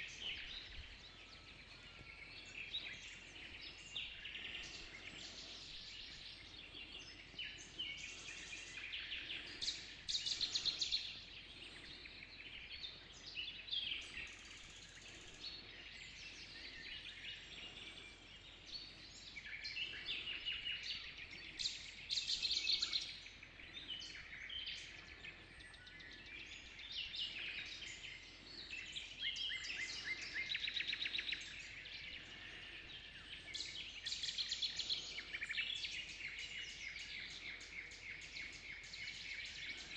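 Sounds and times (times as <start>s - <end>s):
birds singing and calling: 0.0s - 39.9s.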